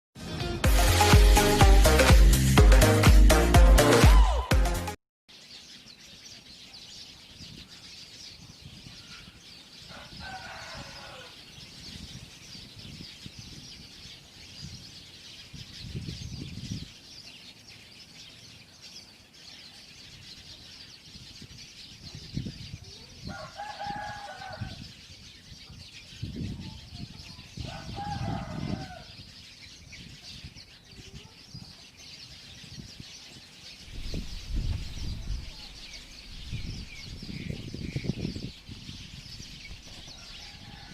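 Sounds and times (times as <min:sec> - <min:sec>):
small birds chirping: 0:05.3 - 0:40.9.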